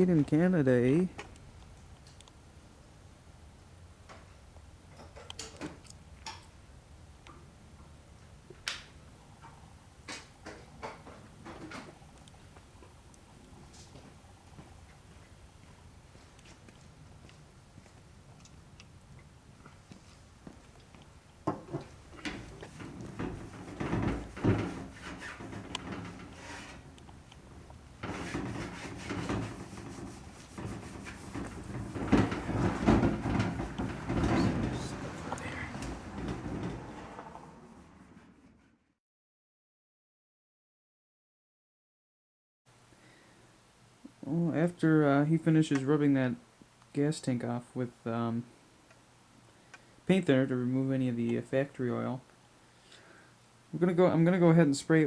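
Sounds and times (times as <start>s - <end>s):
faint low hum: 0.0s - 38.8s
rag rubbing on metal tank: 22.2s - 37.0s.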